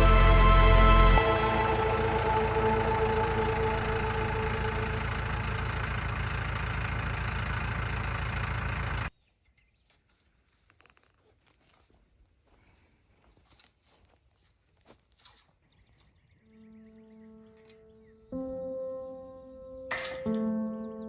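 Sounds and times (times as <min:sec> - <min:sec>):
vehicle engine running: 0:00.0 - 0:09.1.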